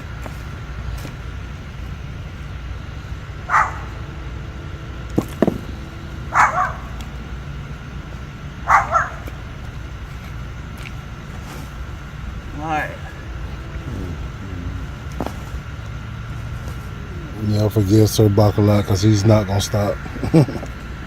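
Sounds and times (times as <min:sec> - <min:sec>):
steady low rumble: 0:00.0 - 0:20.3
dog barking: 0:03.5 - 0:04.0, 0:06.3 - 0:07.2, 0:08.6 - 0:09.4.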